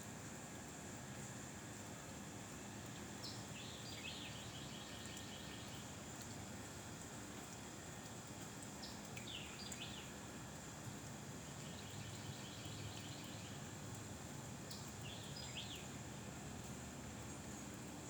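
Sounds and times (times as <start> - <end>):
small bird singing: 3.2 - 5.9, 8.8 - 10.1, 11.6 - 13.6, 14.7 - 15.9.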